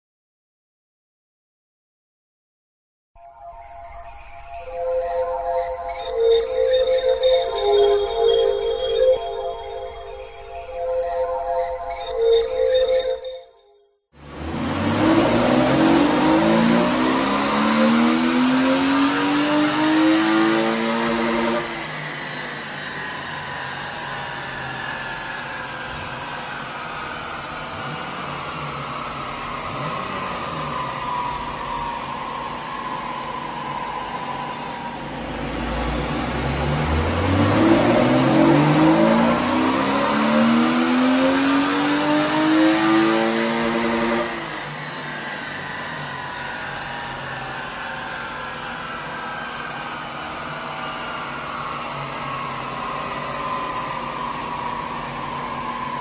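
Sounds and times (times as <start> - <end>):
engine revving at full throttle: 14.2 - 56.0
whine of rollers coasting down: 14.9 - 40.7, 42.6 - 56.0.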